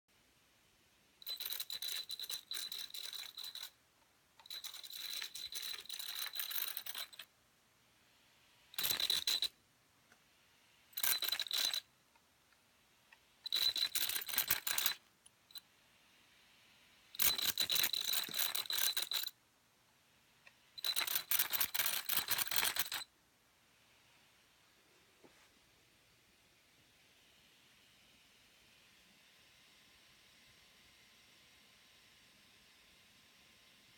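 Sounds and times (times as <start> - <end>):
toy truck drivetrain grinding: 1.2 - 3.8, 4.4 - 7.3, 8.8 - 9.5, 10.9 - 11.9, 13.5 - 15.0, 17.2 - 19.3, 20.8 - 23.0.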